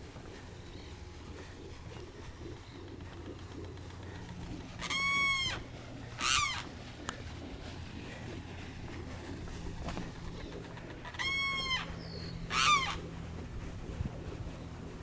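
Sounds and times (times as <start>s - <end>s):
bird calling: 0.3s - 6.8s, 9.8s - 13.4s.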